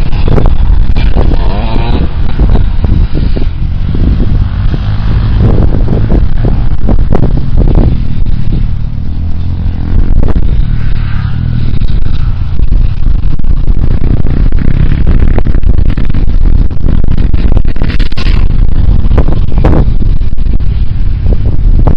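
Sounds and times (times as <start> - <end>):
motorcycle engine: 0.0 - 21.9
wind buffeting microphone: 0.0 - 21.9.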